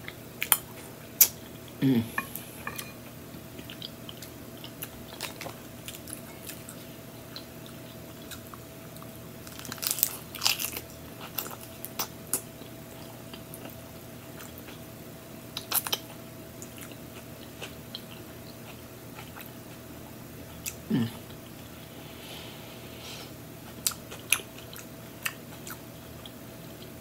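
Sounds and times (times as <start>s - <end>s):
low throat hum: 1.8s - 2.7s
chewing: 3.6s - 14.9s, 15.6s - 19.9s, 23.6s - 26.9s.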